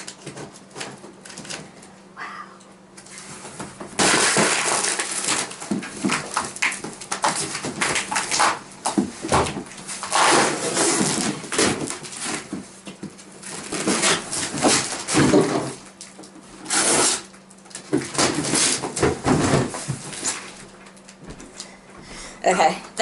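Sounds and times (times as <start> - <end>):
cardboard ripping: 4.0 - 8.6, 9.4 - 12.6, 13.4 - 15.8, 16.6 - 17.3, 18.1 - 20.5.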